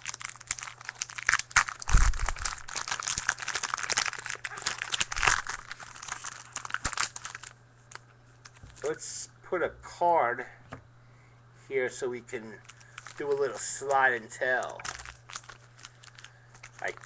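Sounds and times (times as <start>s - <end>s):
wrapper crinkling and tearing: 0.0s - 9.0s, 12.6s - 17.0s.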